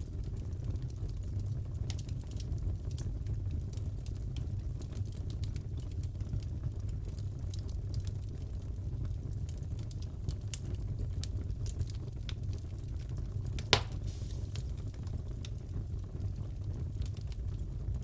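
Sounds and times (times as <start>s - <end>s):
wood fire crackling: 0.0s - 18.0s
fire popping: 10.6s - 17.7s
wood popping and snapping: 13.6s - 14.5s.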